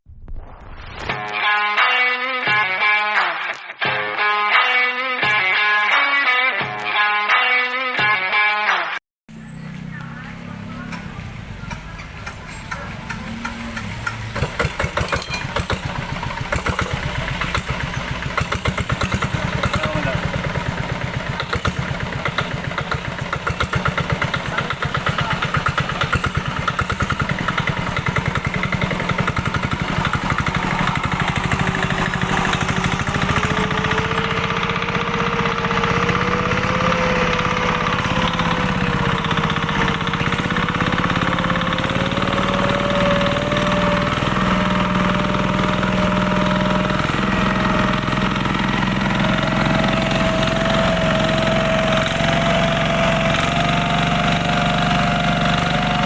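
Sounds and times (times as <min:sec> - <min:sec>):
engine running steadily: 0:09.3 - 0:56.0
rising whine: 0:29.3 - 0:47.8.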